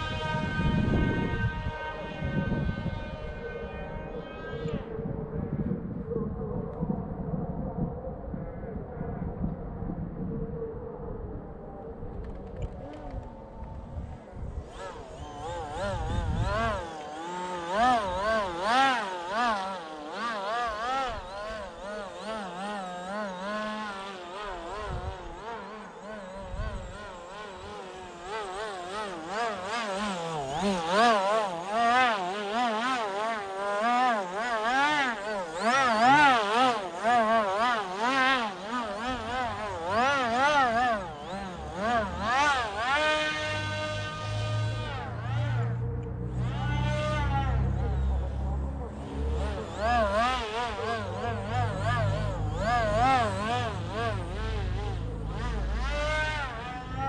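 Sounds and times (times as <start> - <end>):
rc model motor buzzing: 0.0 - 4.8, 14.1 - 57.0
wind rumble on microphone: 0.0 - 17.0, 23.8 - 30.9.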